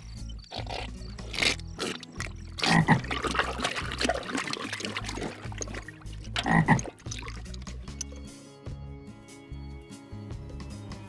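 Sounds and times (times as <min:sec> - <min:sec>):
frog croaking: 0:00.3 - 0:03.6, 0:06.3 - 0:07.0.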